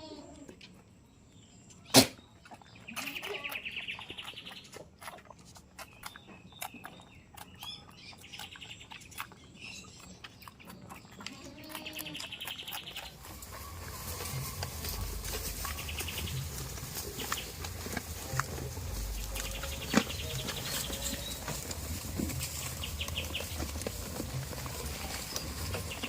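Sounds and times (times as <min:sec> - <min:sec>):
birds chirping: 0:00.9 - 0:26.0
goats bleating: 0:11.3 - 0:12.2, 0:18.2 - 0:23.2.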